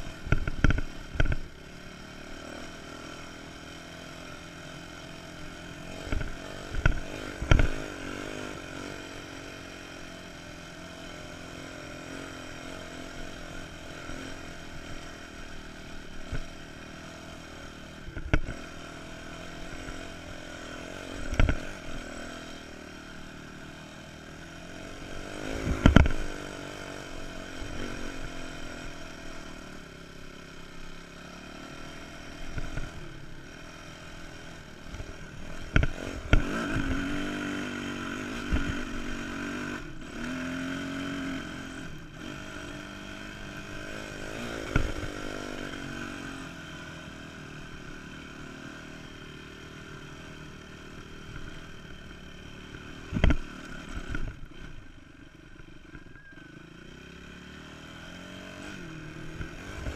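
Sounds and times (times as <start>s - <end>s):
dirt bike engine under load: 6.0s - 8.6s, 25.0s - 28.4s, 34.8s - 41.2s, 52.9s - 56.3s.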